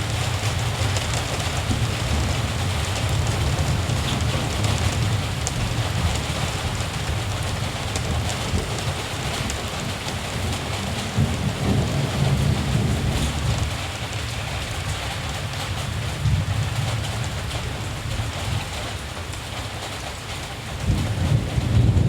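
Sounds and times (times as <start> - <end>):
distant thunder rumbling: 0.0 - 14.2, 20.7 - 22.0
steady rain falling: 0.0 - 22.0.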